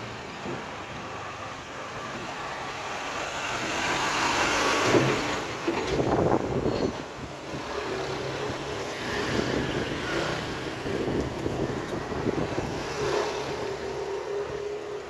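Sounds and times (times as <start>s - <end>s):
street noise: 0.0s - 15.0s
vehicle engine humming: 7.2s - 15.0s.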